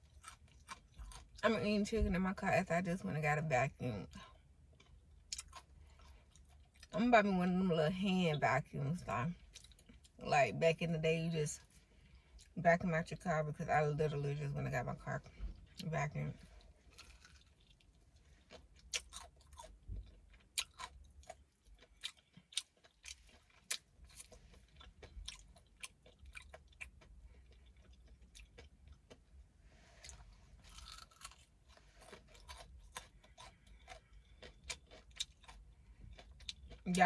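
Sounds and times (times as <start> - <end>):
person chewing crunchy food: 0.0 - 1.4, 4.7 - 6.9, 9.4 - 10.2, 16.4 - 37.0.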